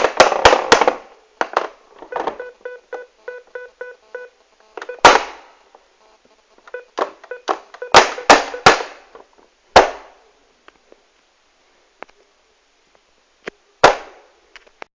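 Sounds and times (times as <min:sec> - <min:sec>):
loud sharp bangs: 0:00.0 - 0:01.6, 0:05.0 - 0:05.6, 0:07.9 - 0:09.1, 0:09.7 - 0:10.2, 0:13.8 - 0:14.2.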